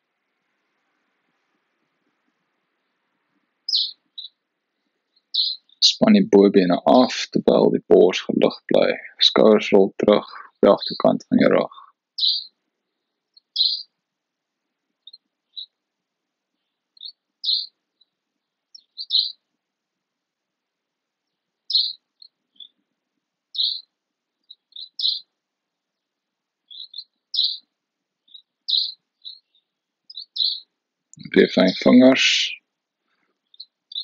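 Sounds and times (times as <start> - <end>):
small bird chirping: 2.7 - 7.1, 9.7 - 14.0, 15.0 - 15.8, 16.5 - 19.5, 21.2 - 34.0.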